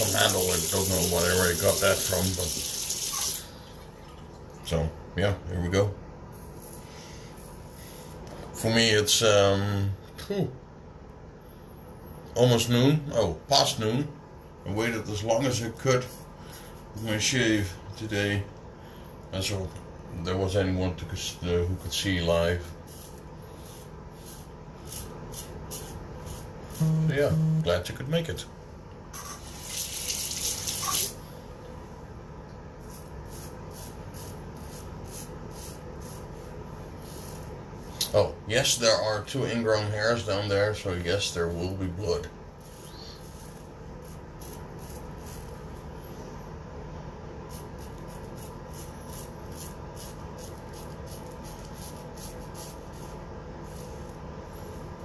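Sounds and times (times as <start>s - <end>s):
water running from a tap: 0.0s - 4.4s, 29.4s - 31.2s
razor scratching on lathered face: 22.9s - 26.9s, 32.8s - 37.5s, 42.6s - 45.6s, 47.5s - 54.1s.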